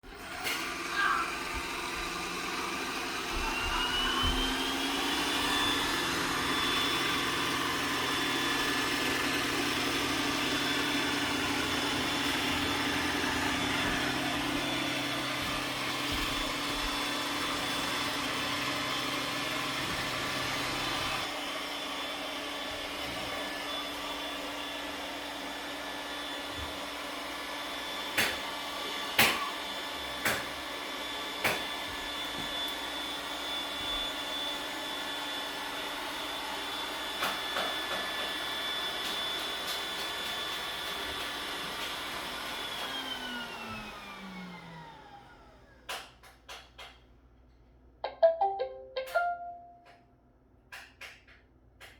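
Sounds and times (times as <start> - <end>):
robot vacuum whine: 0.1 - 45.8.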